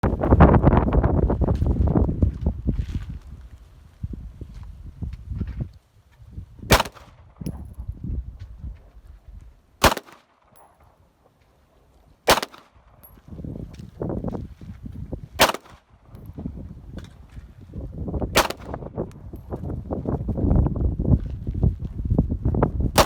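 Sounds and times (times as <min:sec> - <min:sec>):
wind buffeting microphone: 0:00.0 - 0:09.9, 0:11.9 - 0:23.0
pistol shots: 0:06.7 - 0:07.6, 0:09.8 - 0:10.8, 0:12.3 - 0:13.1, 0:15.4 - 0:15.8, 0:18.4 - 0:18.9.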